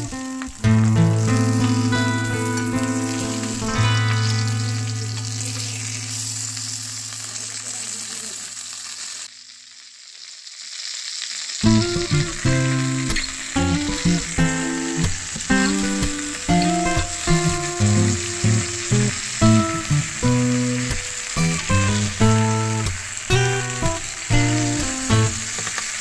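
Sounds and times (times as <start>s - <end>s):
fish sizzling on a griddle: 0.0s - 26.0s
background music sustained notes: 0.6s - 7.3s.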